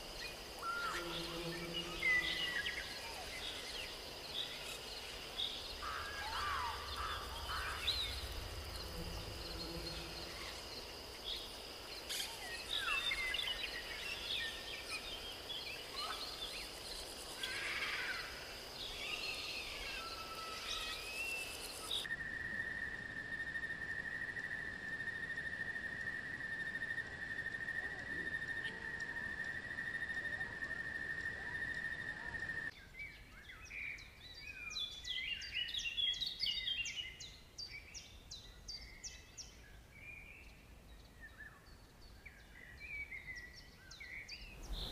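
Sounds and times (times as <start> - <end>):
birds chirping: 0.0 - 22.1, 38.8 - 44.9.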